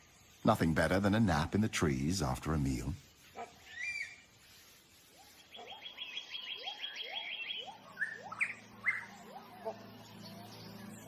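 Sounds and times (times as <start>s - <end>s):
birds chirping: 0.0s - 11.0s
high bird trill: 3.4s - 11.0s.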